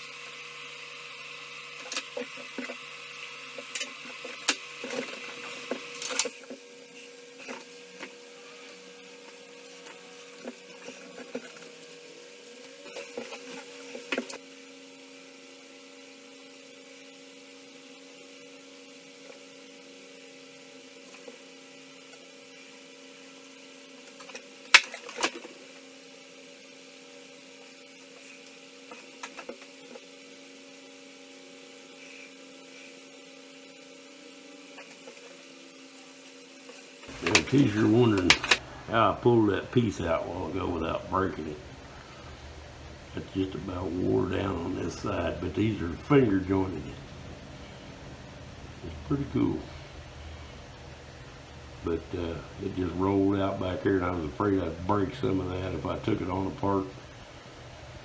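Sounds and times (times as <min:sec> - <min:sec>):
electrical hum: 0:00.0 - 0:14.5, 0:36.7 - 0:58.0.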